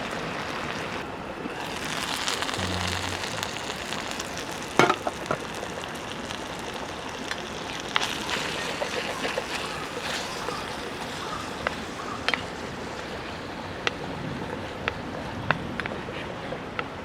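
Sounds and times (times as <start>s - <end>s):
food sizzling in a pan: 0.0s - 13.1s.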